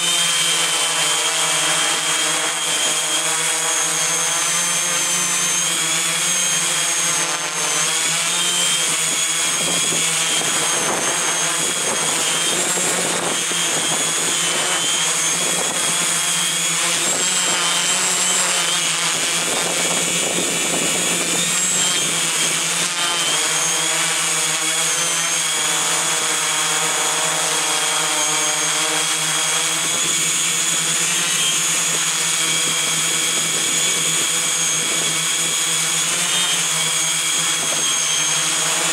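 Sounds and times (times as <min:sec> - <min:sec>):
drone motors whining: 0:00.0 - 0:38.9
wind noise: 0:07.8 - 0:22.8, 0:29.6 - 0:35.7, 0:37.2 - 0:38.9.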